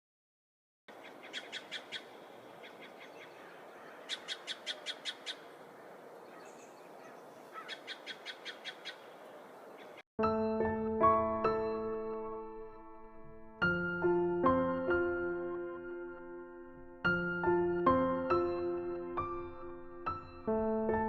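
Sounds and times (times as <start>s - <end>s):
bird chirping: 0.9s - 10.0s
soft piano music: 10.2s - 21.0s.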